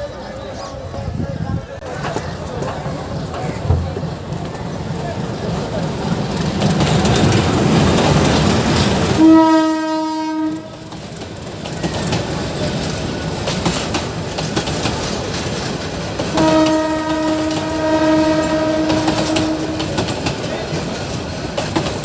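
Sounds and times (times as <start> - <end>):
locomotive rumbling past: 0.0 - 22.0
wheels clicking over rail joints: 1.8 - 9.5, 10.6 - 22.0
train horn: 9.2 - 10.9, 16.3 - 20.1.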